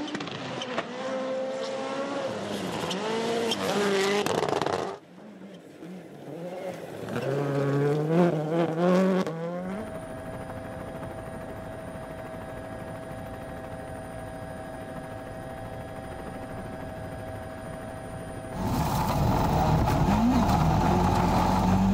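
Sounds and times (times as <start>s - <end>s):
car engine accelerating: 18.5s - 21.9s.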